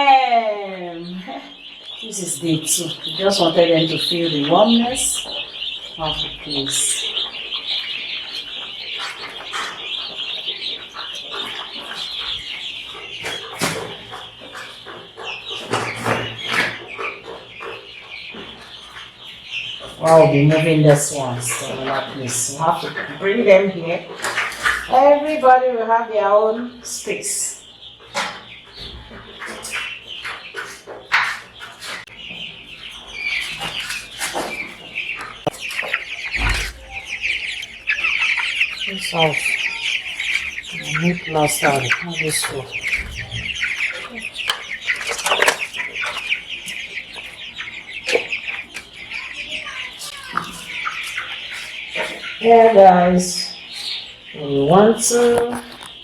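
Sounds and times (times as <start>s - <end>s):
chicks peeping: 0.0s - 56.0s.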